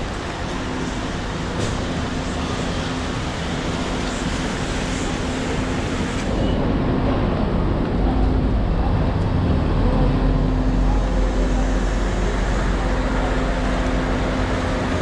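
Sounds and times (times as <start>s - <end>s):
rain on a street: 0.0s - 6.4s
road traffic rumble: 0.0s - 15.0s.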